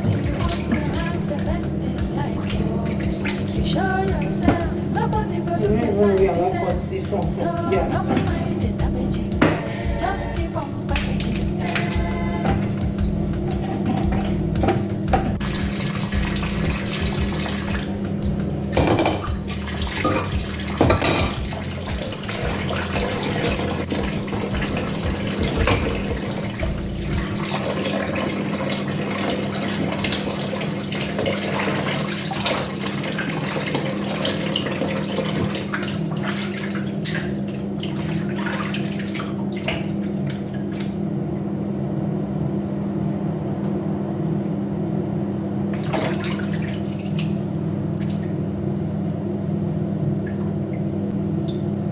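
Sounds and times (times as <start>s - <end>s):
tap running into sink: 0.0s - 5.4s, 7.6s - 9.8s, 10.9s - 28.2s, 31.4s - 36.0s
knocks of things in sink: 4.4s - 4.9s, 8.0s - 8.5s, 9.3s - 9.8s, 10.9s - 15.4s, 18.7s - 26.8s.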